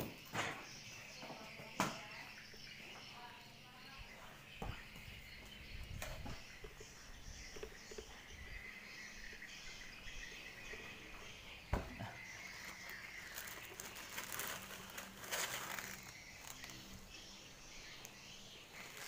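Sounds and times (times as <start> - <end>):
rustling: 12.1 - 17.3, 18.0 - 19.0.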